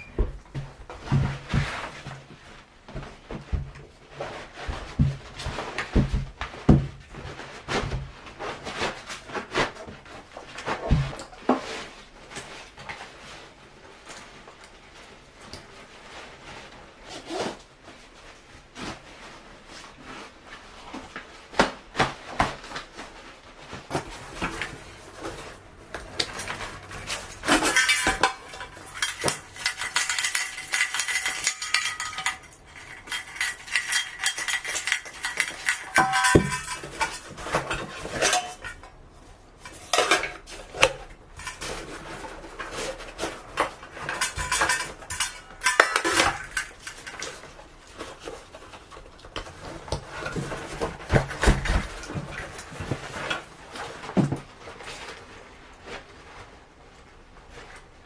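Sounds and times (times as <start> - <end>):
metal camp gear clinking: 24.0 - 53.4.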